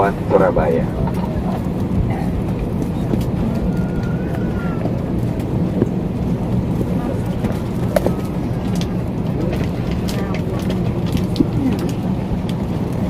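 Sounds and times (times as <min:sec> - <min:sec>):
airliner cabin rumble: 0:00.0 - 0:13.0
faint murmur of voices: 0:00.0 - 0:13.0.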